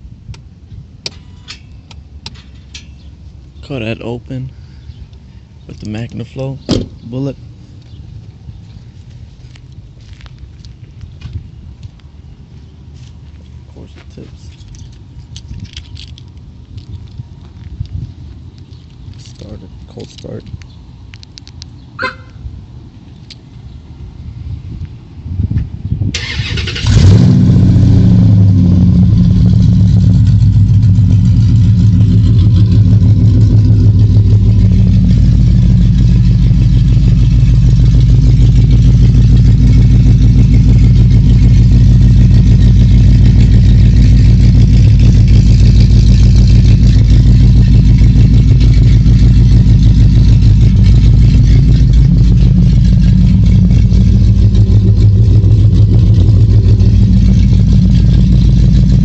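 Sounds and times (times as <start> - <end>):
car engine starting and idling: 25.6 - 59.0.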